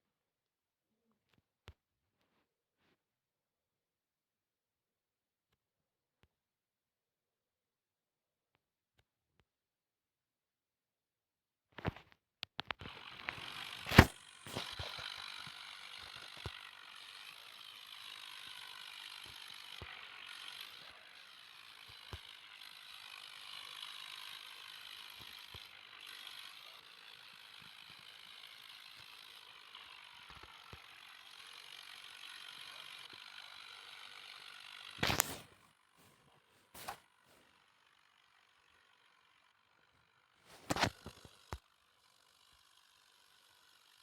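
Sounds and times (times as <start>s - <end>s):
clatter of clicks: 11.8s - 16.6s, 34.9s - 36.1s, 40.5s - 41.6s
geared mechanism whirring: 12.8s - 44.0s.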